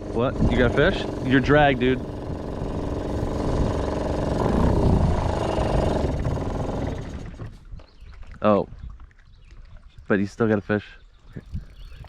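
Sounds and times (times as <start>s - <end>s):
small outboard motor running: 0.0s - 8.2s.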